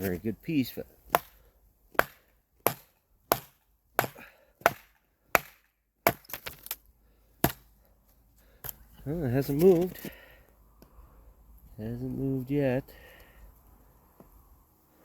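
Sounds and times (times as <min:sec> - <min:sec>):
hatchet chopping wood: 0:01.1 - 0:06.8, 0:07.4 - 0:07.7.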